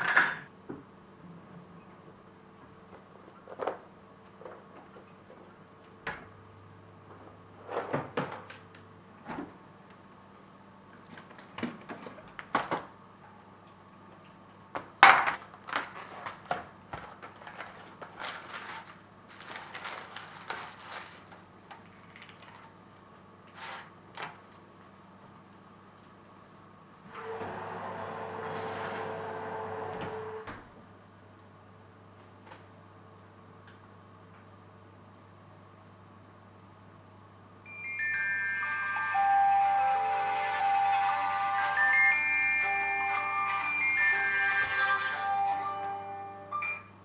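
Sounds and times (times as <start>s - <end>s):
dishes clinking in dishwasher racks: 0.0s - 0.5s.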